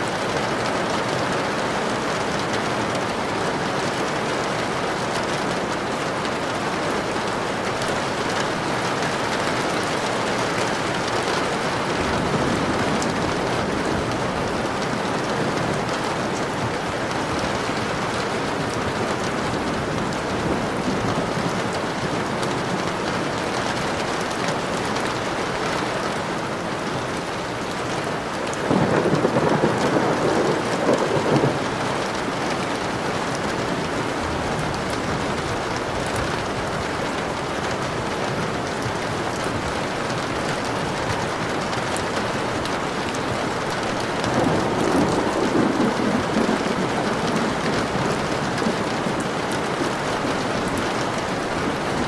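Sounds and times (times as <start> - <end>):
steady rain falling: 0.0 - 52.0
thunder rumbling: 28.6 - 35.7, 42.6 - 52.0.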